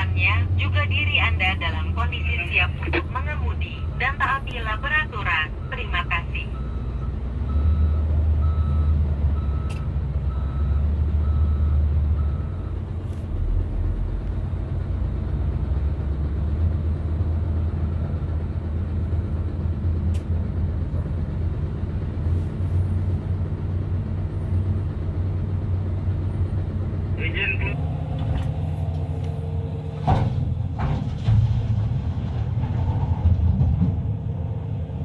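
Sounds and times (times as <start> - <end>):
heavy diesel engine droning: 0.0 - 35.0
reversing alarm beeping: 3.5 - 12.8.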